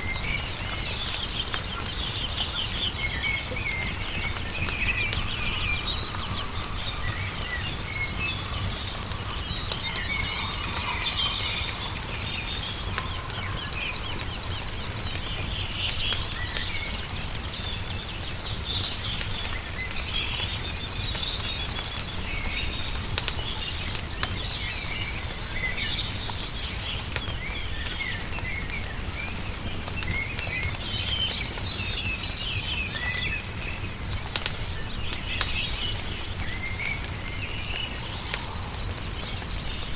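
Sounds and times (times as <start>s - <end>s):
small birds chirping: 0.0s - 39.9s
wood fire crackling: 0.0s - 39.9s.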